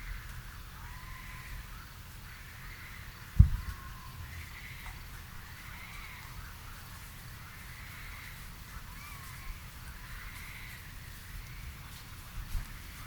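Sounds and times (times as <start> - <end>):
birds chirping: 0.0 - 13.0
low thump: 3.4 - 3.8.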